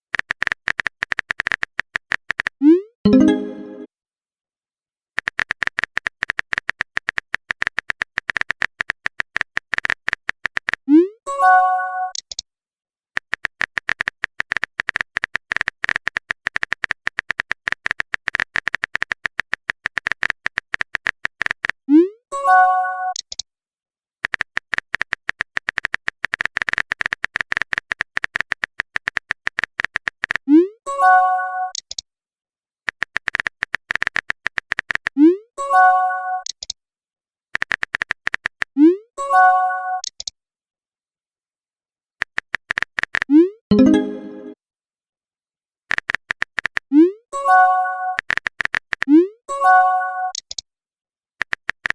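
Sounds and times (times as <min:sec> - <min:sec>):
phone keyboard typing clicks: 0:00.0 - 0:02.6, 0:05.2 - 0:10.9, 0:12.1 - 0:12.4, 0:13.2 - 0:21.8, 0:23.1 - 0:23.4, 0:24.2 - 0:30.5, 0:31.7 - 0:32.0, 0:32.9 - 0:35.2, 0:36.4 - 0:36.8, 0:37.6 - 0:38.8, 0:40.0 - 0:40.4, 0:42.2 - 0:44.6, 0:45.9 - 0:47.0, 0:48.1 - 0:49.3, 0:50.3 - 0:50.6, 0:51.4 - 0:51.9
message alert chime: 0:02.8 - 0:03.9, 0:43.7 - 0:44.6
chiming message tone: 0:03.1 - 0:03.9, 0:11.3 - 0:12.1, 0:43.7 - 0:44.6, 0:49.5 - 0:50.3
high blips: 0:43.3 - 0:44.6.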